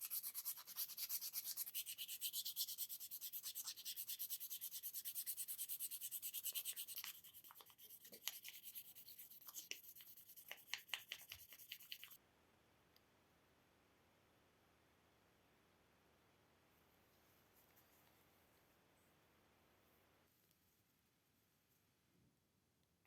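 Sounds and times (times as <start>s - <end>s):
hand sanding wood: 0.0s - 12.2s.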